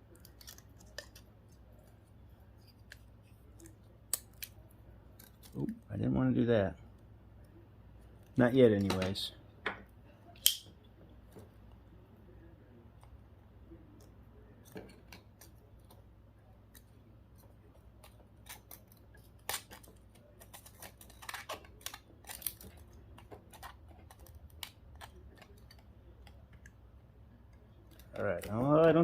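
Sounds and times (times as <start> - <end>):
plastic parts snapping apart: 18.0 - 25.8.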